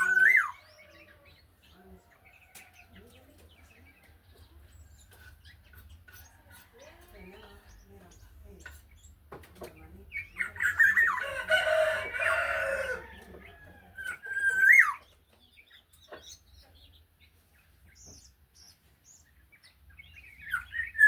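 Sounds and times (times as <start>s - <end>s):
harsh bird call: 0.0s - 1.2s.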